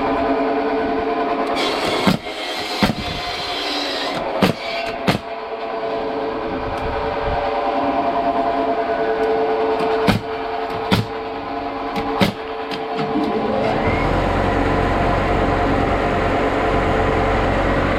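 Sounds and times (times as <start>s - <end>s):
machinery humming: 0.0s - 17.9s
sharp knocks: 4.2s - 5.3s, 9.8s - 11.2s, 12.0s - 13.2s.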